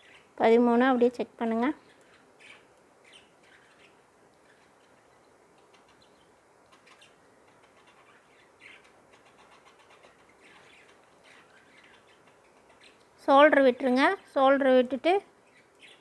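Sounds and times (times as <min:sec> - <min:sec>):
faint bird chirps: 0:00.0 - 0:14.4, 0:15.3 - 0:16.0.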